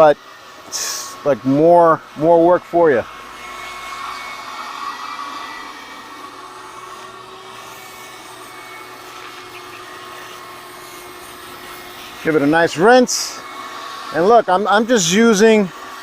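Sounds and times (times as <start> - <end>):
garden hose spraying water: 0.0 - 2.9, 6.2 - 15.7.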